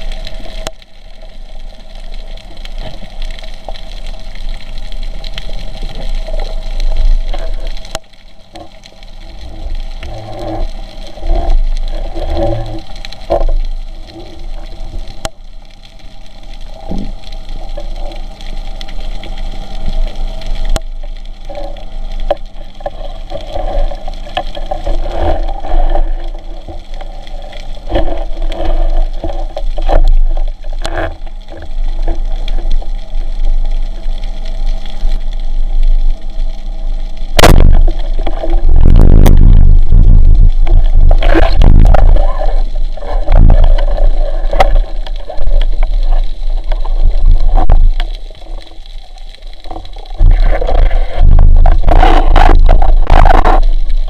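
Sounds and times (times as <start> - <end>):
steady hum: 0.0 - 54.0
underwater water moving: 0.0 - 54.0
low rumble: 16.5 - 54.0.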